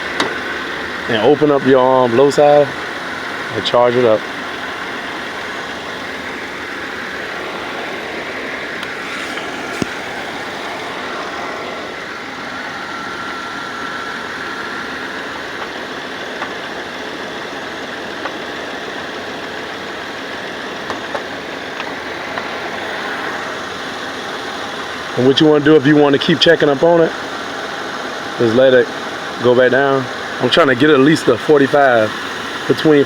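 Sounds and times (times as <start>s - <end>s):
car engine idling: 0.0s - 18.5s
air conditioning running: 0.0s - 33.0s.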